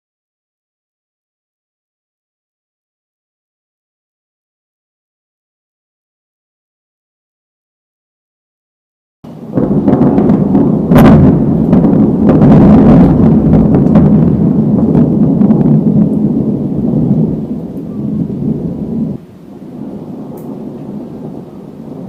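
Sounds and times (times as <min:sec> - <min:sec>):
rain: 0:09.3 - 0:22.0
thunder rumbling and cracking: 0:09.3 - 0:22.0.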